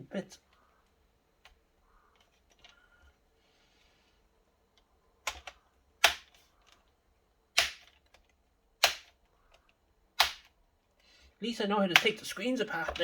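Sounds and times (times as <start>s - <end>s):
plastic laptop casing clicks: 5.3s - 6.8s, 7.6s - 9.6s, 10.2s - 10.6s.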